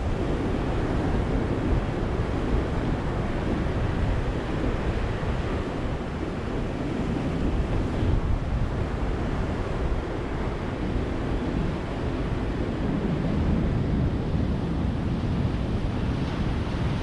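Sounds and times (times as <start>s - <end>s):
waves breaking on beach: 0.0s - 17.0s.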